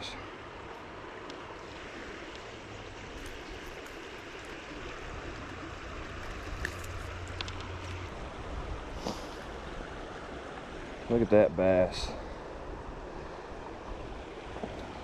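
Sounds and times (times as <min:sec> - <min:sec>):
creek water running: 0:00.0 - 0:15.0
small splashes: 0:01.6 - 0:08.2.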